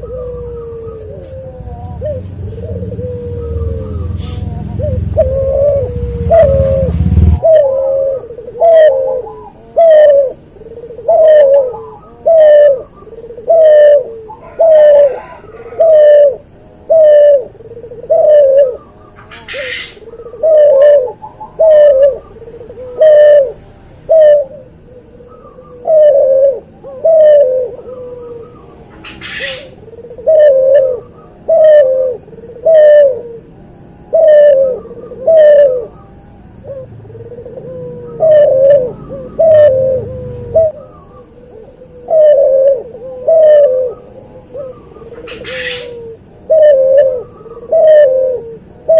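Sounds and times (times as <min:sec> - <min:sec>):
dove cooing: 0:00.0 - 0:48.9
brief hissing noises: 0:04.2 - 0:04.5.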